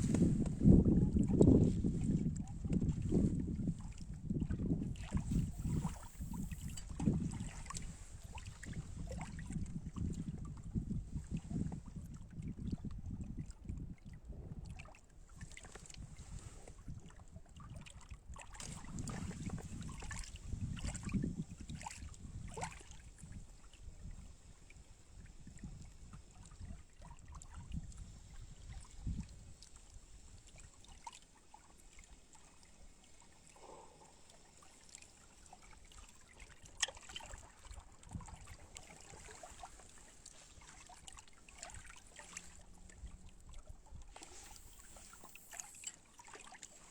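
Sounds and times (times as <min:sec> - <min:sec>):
wind buffeting microphone: 0:00.0 - 0:14.7, 0:18.6 - 0:29.6
water lapping: 0:03.8 - 0:10.2, 0:26.2 - 0:46.9.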